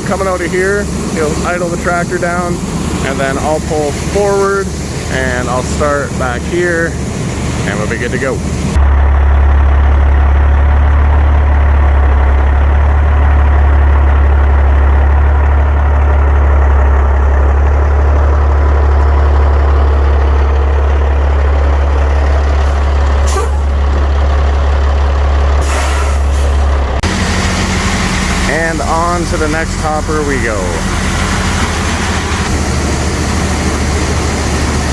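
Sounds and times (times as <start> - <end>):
heavy diesel engine drone: 0.0 - 34.9
air brake hiss: 25.6 - 26.6.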